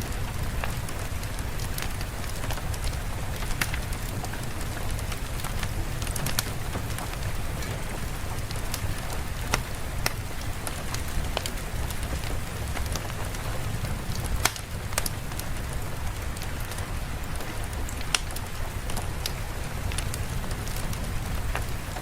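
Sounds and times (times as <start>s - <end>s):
steady rain: 0.0s - 22.0s
sharp ticks and pops: 14.2s - 15.2s, 16.1s - 22.0s.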